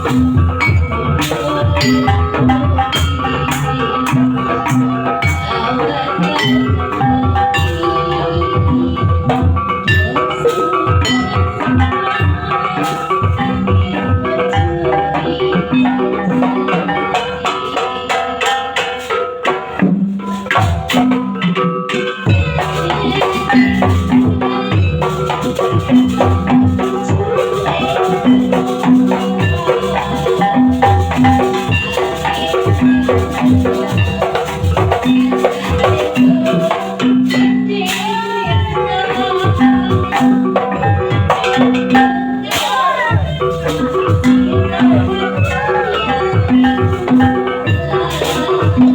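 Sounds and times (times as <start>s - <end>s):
drum strokes: 0.0s - 48.9s
metallophones playing melody: 0.0s - 48.9s.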